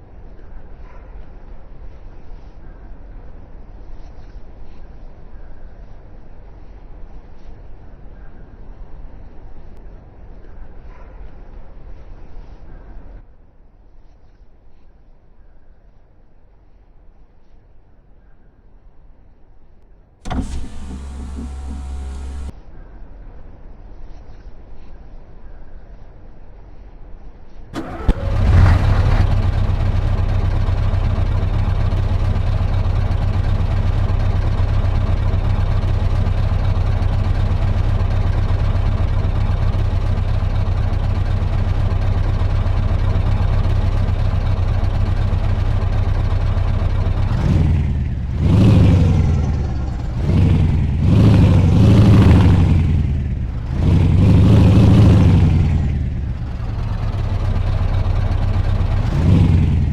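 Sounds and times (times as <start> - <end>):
truck engine idling: 20.2 - 22.5, 27.8 - 59.9
truck engine revving: 20.2 - 22.5, 27.8 - 59.9
starter click: 20.3 - 22.5.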